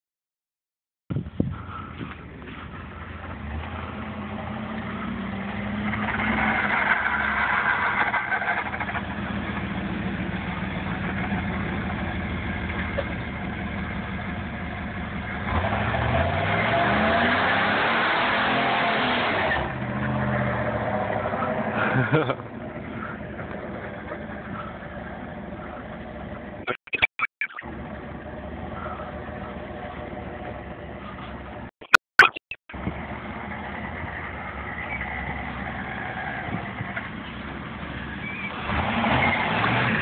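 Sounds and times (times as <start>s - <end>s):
tyres spinning on asphalt: 1.5s - 26.6s, 27.6s - 31.7s, 32.7s - 40.0s
car engine revving hard: 15.4s - 22.3s, 38.5s - 40.0s.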